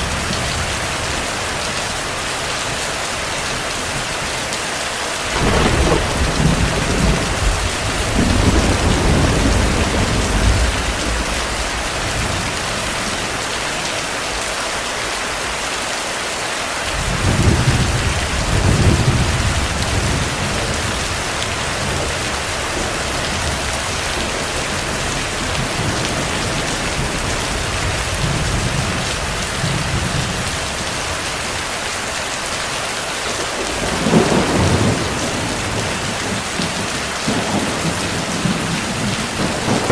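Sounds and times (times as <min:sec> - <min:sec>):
heavy rain: 0:00.0 - 0:39.9
thunder rumbling: 0:05.3 - 0:14.2, 0:16.9 - 0:31.6, 0:33.3 - 0:39.9
sharp thunderclap: 0:05.4 - 0:12.9, 0:33.6 - 0:35.9, 0:37.3 - 0:39.9.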